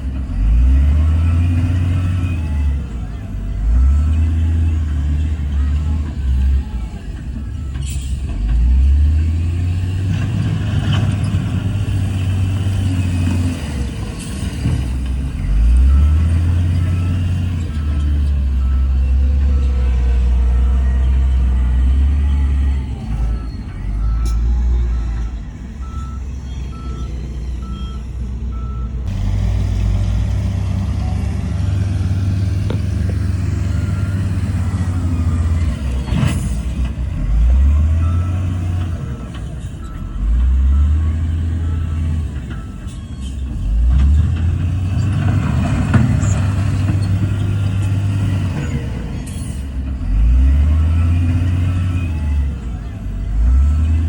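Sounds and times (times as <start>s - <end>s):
heavy diesel engines droning: 0.0s - 54.0s
reversing alarm beeping: 15.5s - 29.1s.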